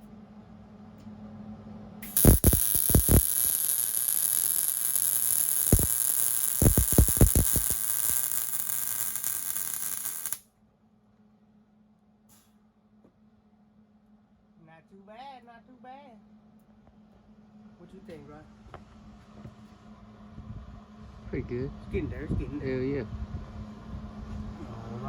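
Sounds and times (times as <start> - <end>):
welding arc crackling and hissing: 2.0 - 10.4
welding pops: 2.0 - 10.4.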